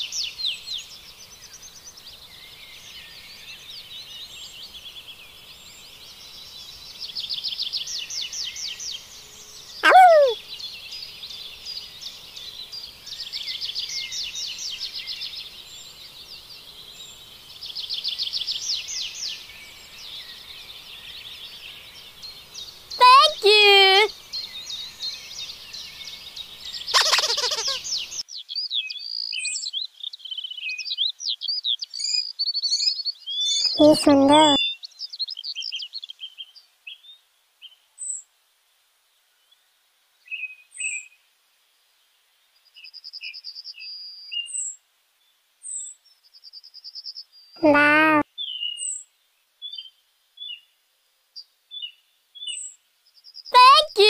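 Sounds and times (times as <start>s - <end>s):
faint hiss: 0.0s - 33.3s
small birds chirping: 0.0s - 38.3s, 42.5s - 54.0s.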